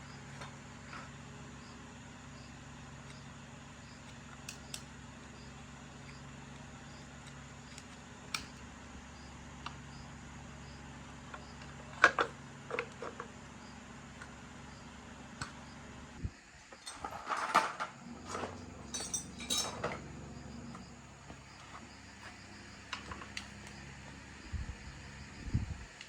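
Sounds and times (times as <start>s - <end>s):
steady low hum: 0.0s - 26.0s
metal tools clinking: 16.8s - 20.1s.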